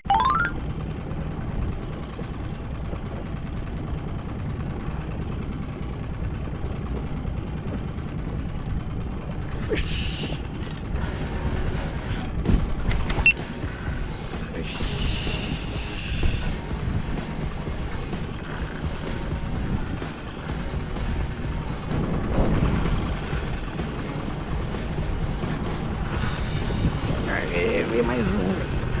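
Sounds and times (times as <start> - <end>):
high steady tones: 0.0 - 0.6, 9.4 - 29.0
boat engine idling: 0.8 - 29.0.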